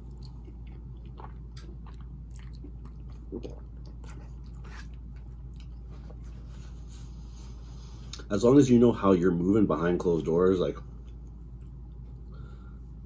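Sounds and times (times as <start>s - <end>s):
person chewing food: 0.0s - 8.3s, 11.0s - 13.0s.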